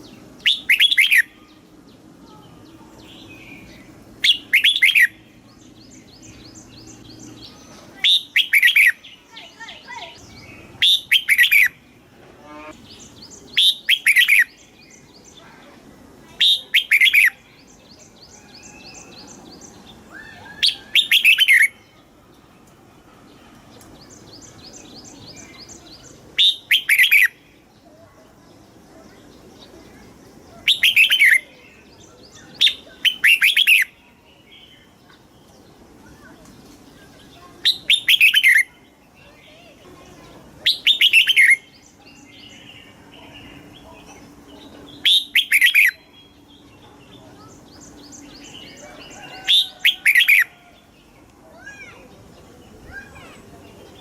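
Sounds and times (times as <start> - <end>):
rapid bird chirping: 0.0 - 1.9, 3.0 - 11.8, 12.7 - 15.6, 16.4 - 22.1, 24.1 - 27.4, 30.5 - 33.9, 37.3 - 38.8, 40.6 - 50.5
bird whistling song phrases: 0.4 - 1.5, 3.0 - 5.2, 5.8 - 11.8, 13.0 - 15.1, 16.4 - 17.4, 18.3 - 22.0, 24.1 - 27.4, 30.6 - 34.0, 37.6 - 38.8, 40.6 - 42.7, 44.9 - 46.4.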